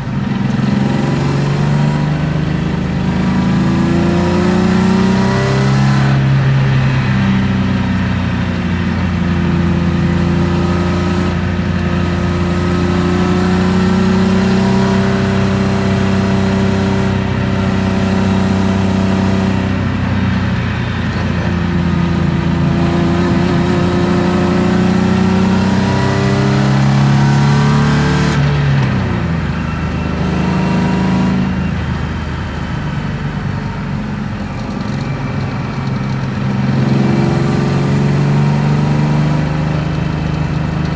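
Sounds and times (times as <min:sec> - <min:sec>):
car engine revving in cabin: 0:00.0 - 0:07.6, 0:09.2 - 0:40.9.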